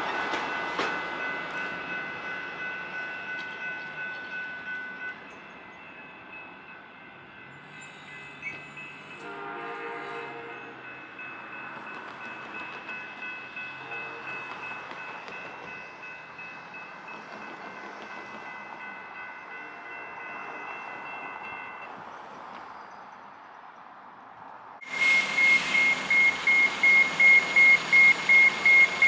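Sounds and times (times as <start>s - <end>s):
train horn: 9.2s - 10.8s, 13.8s - 14.5s
locomotive engine humming: 24.8s - 29.0s.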